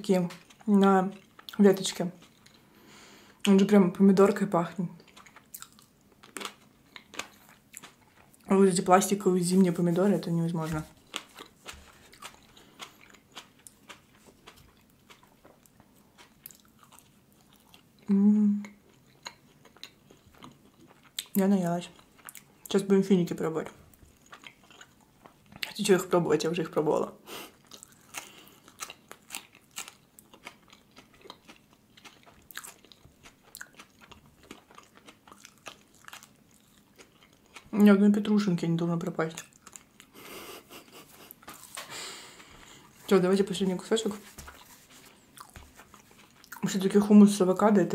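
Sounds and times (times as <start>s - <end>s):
person chewing soft food: 0.3s - 3.5s, 5.0s - 8.5s, 10.8s - 22.7s, 23.8s - 25.8s, 27.3s - 37.8s, 39.4s - 43.1s, 44.1s - 46.8s.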